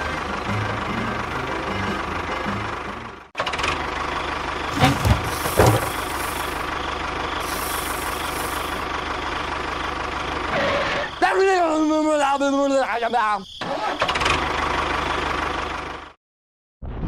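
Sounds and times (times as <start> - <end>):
loud knocks: 4.7 - 6.5
small motor pulsing: 7.4 - 8.8.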